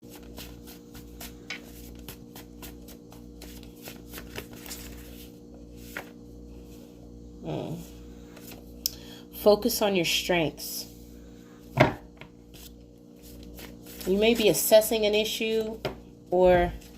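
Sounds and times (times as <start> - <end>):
steady low hum: 0.0 - 16.9
cards shuffling: 0.1 - 6.2, 12.5 - 14.6.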